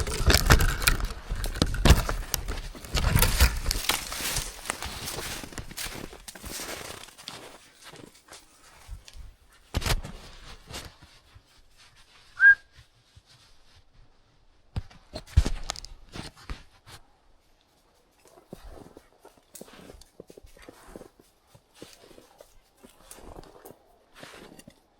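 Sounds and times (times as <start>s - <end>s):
footsteps crunching through dry leaves: 0.0s - 8.8s
loud upward whistle: 12.4s - 12.6s.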